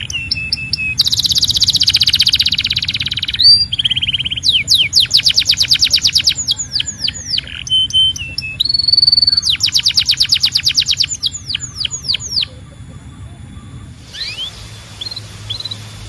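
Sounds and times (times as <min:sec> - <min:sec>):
canary singing trills: 0:00.0 - 0:16.0.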